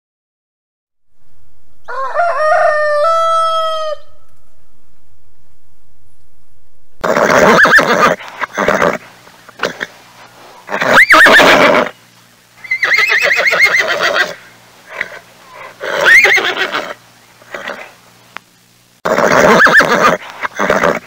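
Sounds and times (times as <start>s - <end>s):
horse whinnying: 7.0s - 9.0s, 10.7s - 11.9s, 12.7s - 14.4s, 15.8s - 17.8s, 19.0s - 21.0s.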